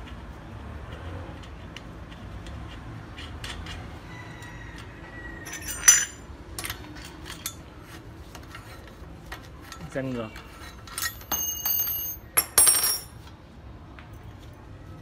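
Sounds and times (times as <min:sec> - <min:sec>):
metal tools clicking and clinking: 0:05.4 - 0:07.7, 0:08.4 - 0:13.3
loud ringing metallic clink: 0:05.5 - 0:06.7, 0:10.9 - 0:13.2.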